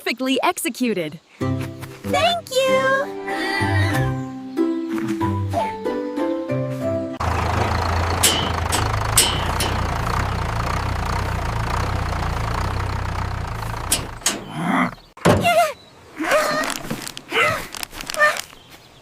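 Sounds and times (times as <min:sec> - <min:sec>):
vehicle engine rumbling: 0:07.2 - 0:15.2.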